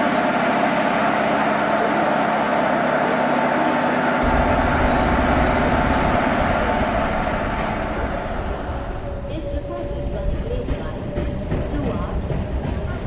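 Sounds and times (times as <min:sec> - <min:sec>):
train rumble and hum: 0:00.0 - 0:13.0
deep low rumble: 0:04.2 - 0:13.0.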